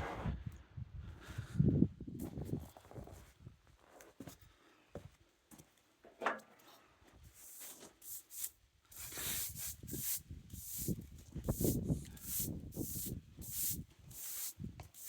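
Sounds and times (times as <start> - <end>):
hand brushing sawdust off board: 7.4 - 15.0.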